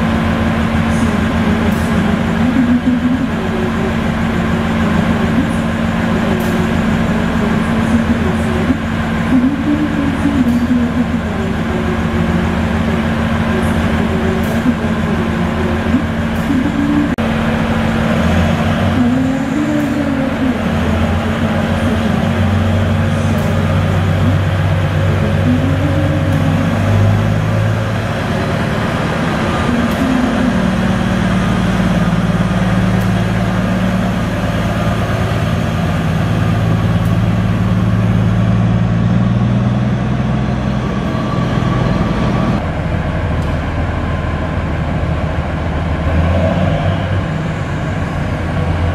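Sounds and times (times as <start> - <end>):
diesel engine exhaust drone: 0.0 - 48.9.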